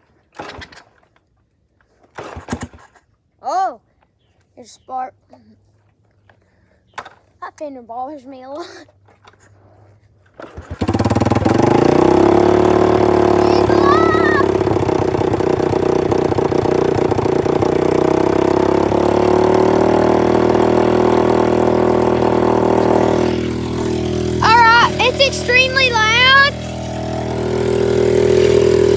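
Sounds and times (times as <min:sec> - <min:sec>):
dirt bike engine starting and idling: 0:00.0 - 0:03.2, 0:08.9 - 0:28.9.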